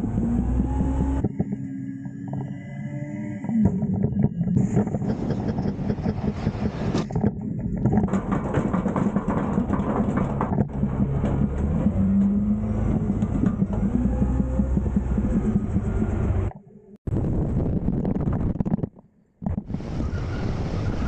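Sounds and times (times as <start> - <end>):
truck engine running under load: 4.6 - 16.5.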